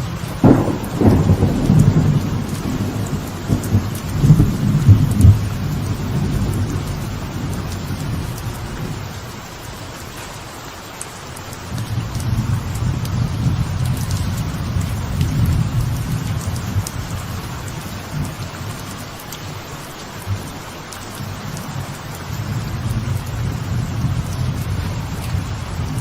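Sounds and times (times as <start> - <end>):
thunderclap: 0.0 - 9.2
rolling thunder rumbles: 0.0 - 9.8, 11.7 - 19.1, 20.2 - 26.0
steady falling rain: 0.0 - 26.0.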